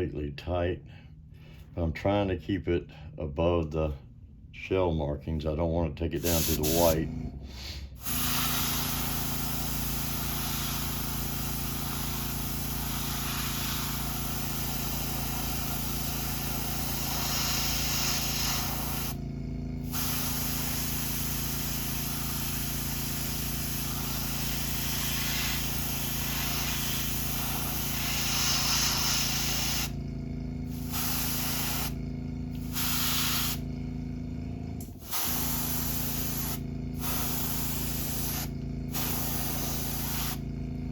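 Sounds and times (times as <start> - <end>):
steady low hum: 0.0 - 40.9
airbrush spraying hiss: 6.2 - 7.0, 8.0 - 19.2, 19.8 - 30.0, 30.7 - 32.0, 32.6 - 33.6, 35.0 - 40.4.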